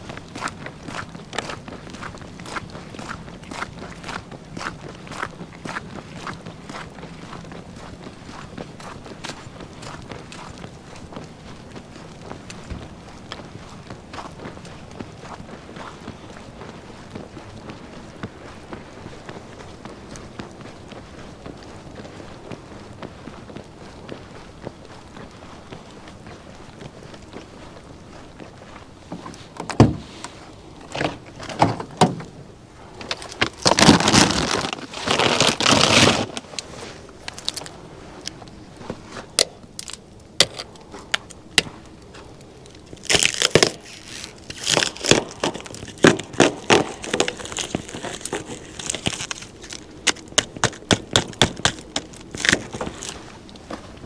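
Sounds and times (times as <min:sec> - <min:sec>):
rustling: 0:27.4 - 0:54.0.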